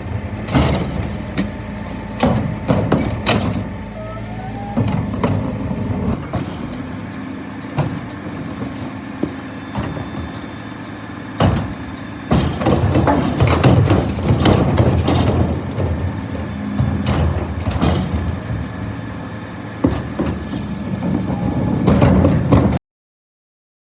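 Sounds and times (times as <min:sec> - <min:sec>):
truck engine running: 0:00.0 - 0:22.7
sharp knocks and clatter: 0:00.5 - 0:01.6, 0:11.4 - 0:18.5.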